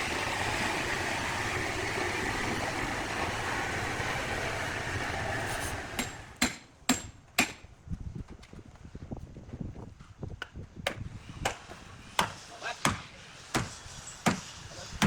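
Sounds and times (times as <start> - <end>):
engine running: 0.0 - 6.4.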